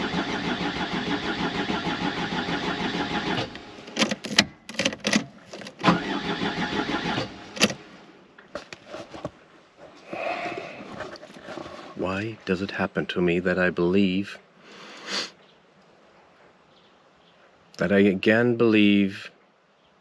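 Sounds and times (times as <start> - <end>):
starter motor cranking engine: 0.0 - 7.8
sharp clicks and knocks: 3.9 - 5.9, 7.6 - 7.8.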